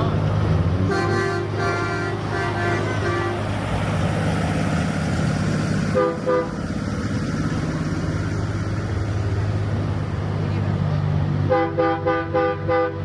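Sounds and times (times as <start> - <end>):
truck engine rumble: 0.0 - 13.0
truck horn toots: 0.8 - 3.6, 5.9 - 6.6, 11.5 - 13.0.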